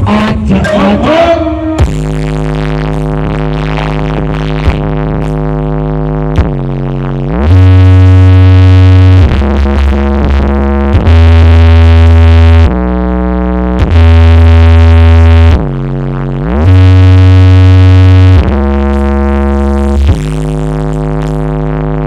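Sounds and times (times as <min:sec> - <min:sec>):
synthesizer chords: 0:00.0 - 0:06.3
heavy bass line: 0:00.0 - 0:22.0.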